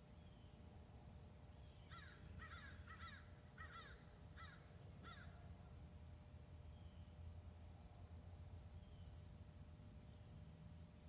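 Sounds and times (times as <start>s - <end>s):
faint low hum: 0.0s - 11.0s
faint bird calls: 1.6s - 5.5s.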